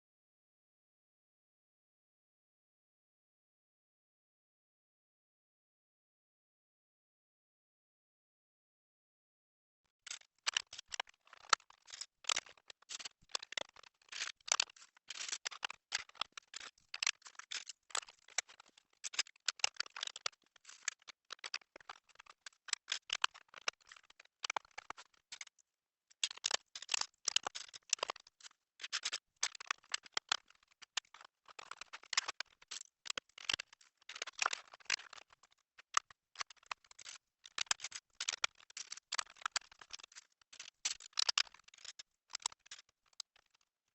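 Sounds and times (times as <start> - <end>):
plastic bricks clicking and rattling: 10.1 - 43.7.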